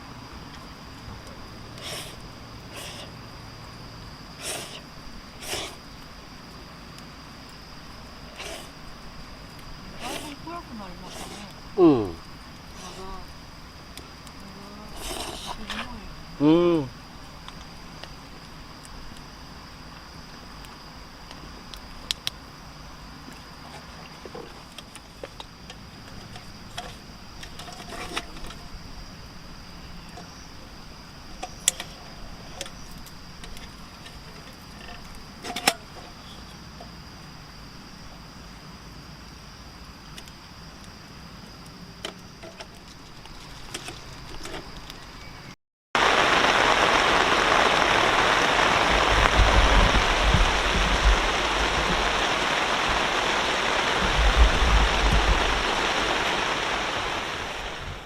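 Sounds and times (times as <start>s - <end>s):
low rumbles: 46.0s - 58.0s
water rushing: 46.0s - 58.0s.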